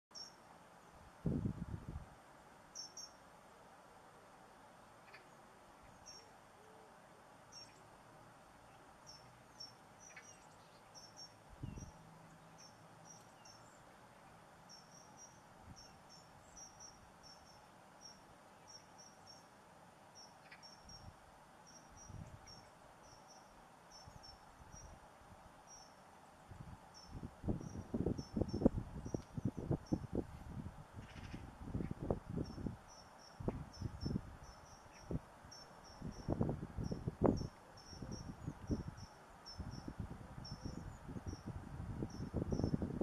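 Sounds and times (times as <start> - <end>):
songbird chirping: 0.1 - 1.0, 2.7 - 3.8, 4.8 - 30.2, 31.0 - 42.8.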